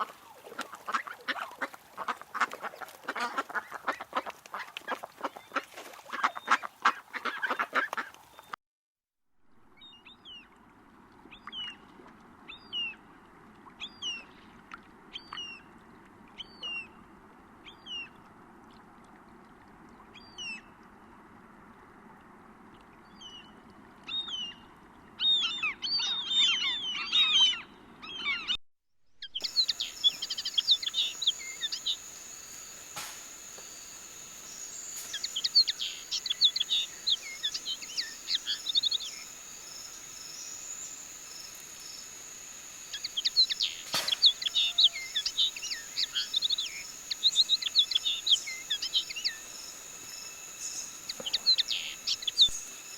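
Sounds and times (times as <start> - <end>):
bird chirping: 29.2 - 52.9
birdsong: 29.2 - 52.9
high insect-like buzz: 29.4 - 52.9.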